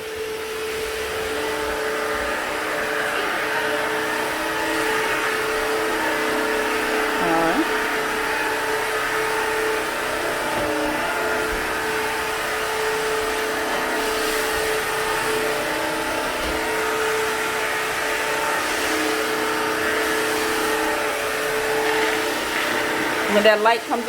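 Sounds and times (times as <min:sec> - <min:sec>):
vacuum mop motor whining: 0:00.0 - 0:24.0.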